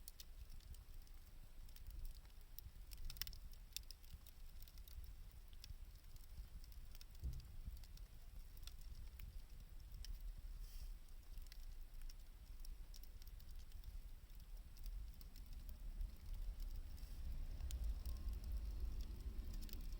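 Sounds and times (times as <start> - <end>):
wood fire crackling: 0.0 - 19.9
low rumble: 16.0 - 19.9.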